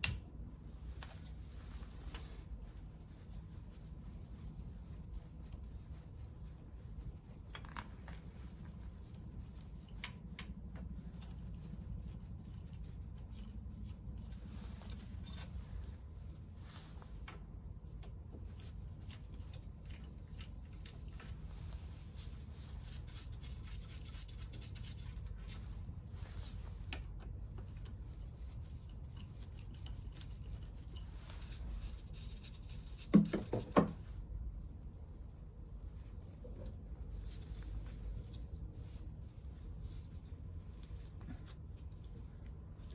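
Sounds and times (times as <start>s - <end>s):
low steady hum: 0.0s - 42.9s
tools clicking and tapping: 31.9s - 34.0s.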